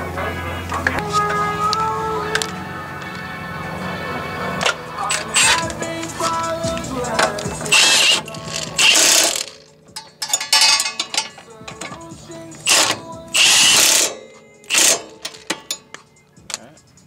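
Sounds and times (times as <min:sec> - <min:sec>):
ratchet wrench clicking: 0:05.1 - 0:16.2
sharp metal tool clicks: 0:07.2 - 0:16.6.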